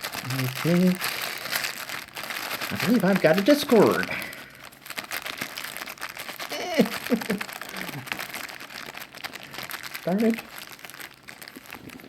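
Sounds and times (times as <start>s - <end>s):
plastic bag crinkling: 0.0s - 12.0s
person muttering: 6.5s - 8.1s.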